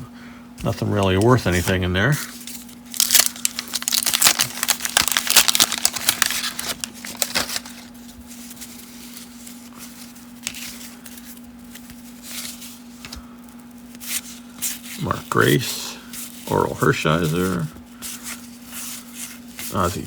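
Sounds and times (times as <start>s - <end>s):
cards rustling: 0.6s - 20.0s
wax paper wrapper tearing: 2.6s - 8.0s.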